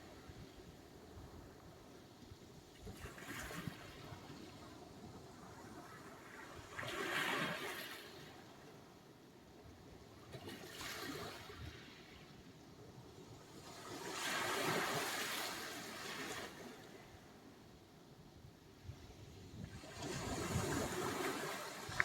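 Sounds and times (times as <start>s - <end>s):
waves breaking on shore: 2.8s - 8.5s, 13.5s - 17.3s, 19.4s - 22.0s.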